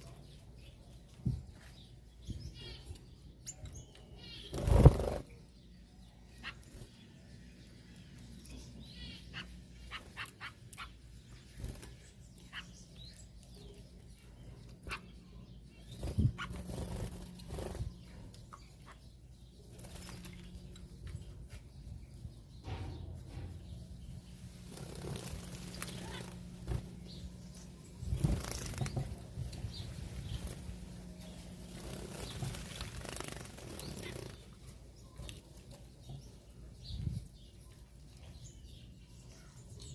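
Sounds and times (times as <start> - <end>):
wing flutters: 4.4 - 5.4, 16.0 - 18.2, 24.6 - 27.2, 28.0 - 30.8, 31.6 - 34.6.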